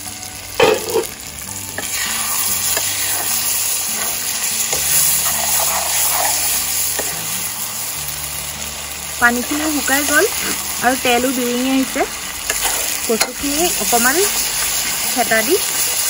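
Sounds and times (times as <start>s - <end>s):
frying sizzle: 0.0s - 16.0s
metal spatula scraping pan: 4.0s - 7.2s.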